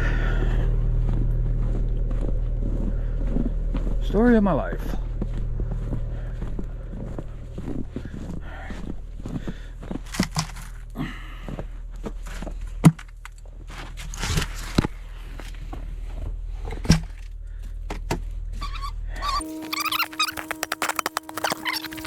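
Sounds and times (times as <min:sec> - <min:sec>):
steady low hum: 0:00.0 - 0:22.0
footsteps: 0:00.4 - 0:10.8, 0:19.4 - 0:22.0.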